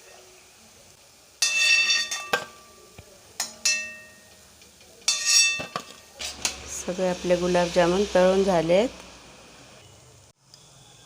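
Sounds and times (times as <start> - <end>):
metal spoon striking frying pan: 1.4 - 2.7, 3.4 - 6.7.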